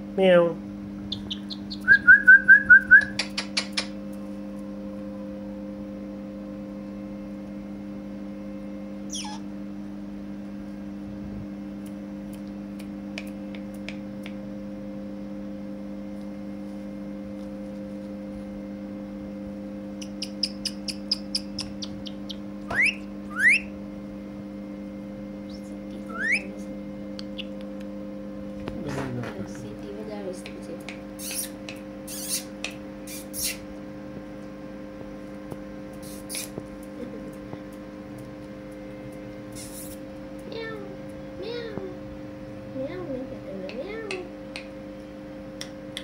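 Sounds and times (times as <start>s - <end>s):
parakeet chirping and whistling: 1.1s - 3.9s, 9.1s - 9.4s, 20.0s - 23.7s, 25.5s - 26.6s, 27.3s - 27.6s, 31.2s - 32.5s, 33.1s - 33.6s, 36.0s - 36.6s, 39.6s - 40.0s.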